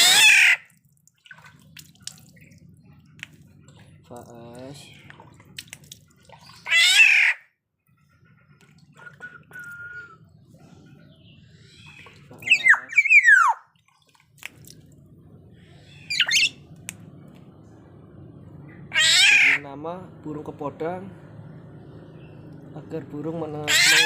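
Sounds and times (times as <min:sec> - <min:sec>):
bird squawking calls: 0:06.4 - 0:07.4, 0:11.2 - 0:13.7, 0:15.8 - 0:16.6, 0:18.9 - 0:19.6, 0:23.6 - 0:24.0.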